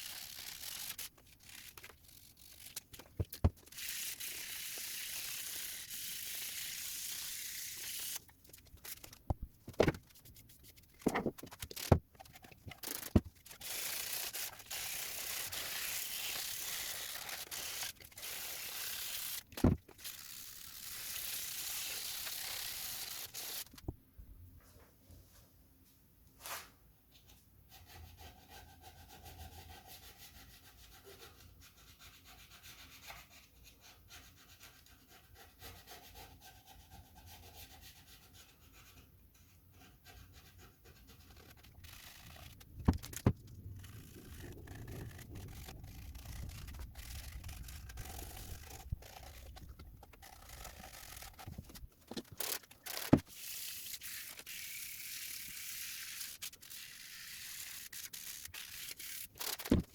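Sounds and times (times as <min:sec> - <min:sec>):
sandpaper rubbing: 0:00.0 - 0:08.2, 0:08.8 - 0:23.8, 0:39.8 - 0:59.9.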